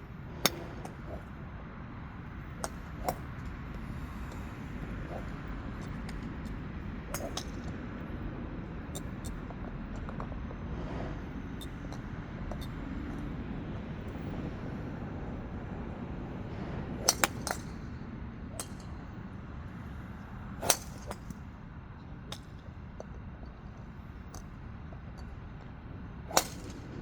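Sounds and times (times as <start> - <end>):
golf club striking ball: 0.4 - 1.3, 2.6 - 6.3, 7.1 - 7.7, 17.0 - 17.6, 20.6 - 21.2, 26.3 - 26.8.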